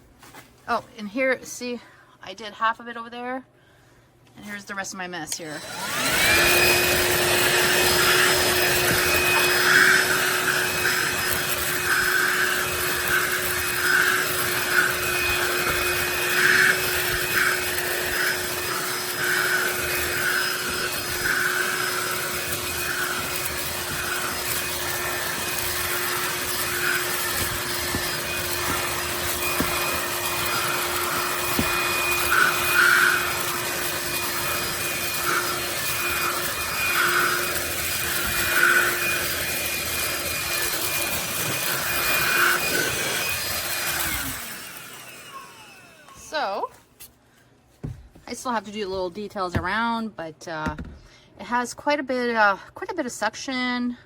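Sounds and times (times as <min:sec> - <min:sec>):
vacuum nozzle on carpet: 0:05.4 - 0:46.7
handheld vacuum running: 0:05.4 - 0:46.8.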